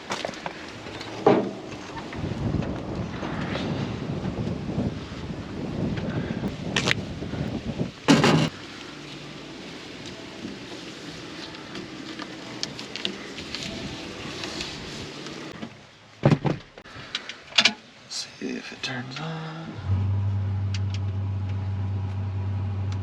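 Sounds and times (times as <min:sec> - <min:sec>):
knocks and clatters: 0:08.1 - 0:08.5, 0:15.6 - 0:16.8.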